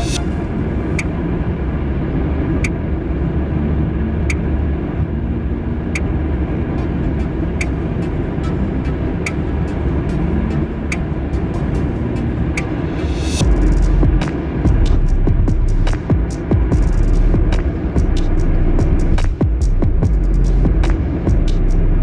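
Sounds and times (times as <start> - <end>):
car road and engine noise: 0.0 - 22.0
sharp click: 19.2 - 19.4.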